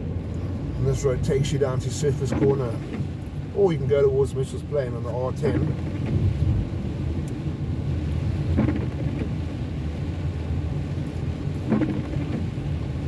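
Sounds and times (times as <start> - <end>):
car engine and tyres on wet road: 0.0 - 13.0
car bump: 8.5 - 9.4, 11.6 - 12.5.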